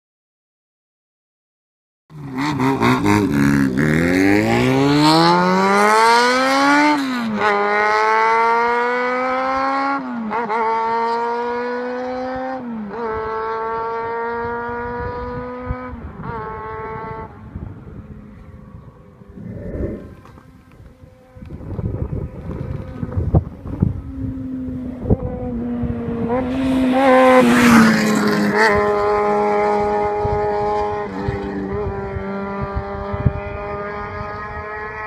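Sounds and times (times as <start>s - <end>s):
motorcycle engine accelerating: 2.1s - 35.0s.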